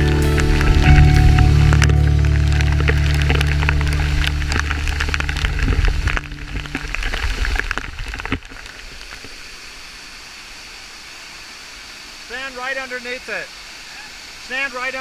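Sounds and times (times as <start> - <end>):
low background music: 0.0 - 6.8
falling water rushing: 0.0 - 7.0
dense crackling patter: 0.0 - 7.9.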